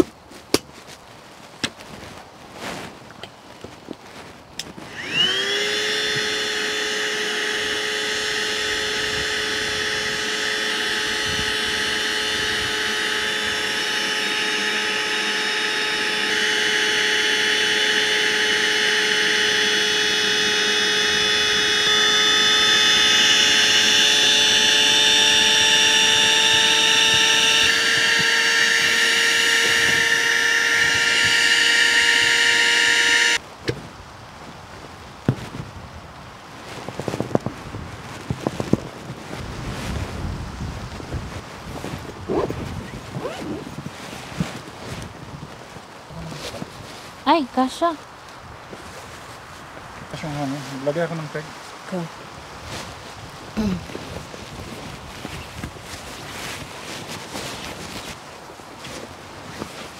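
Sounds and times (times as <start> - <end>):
small electric motor whine: 4.6 - 33.4.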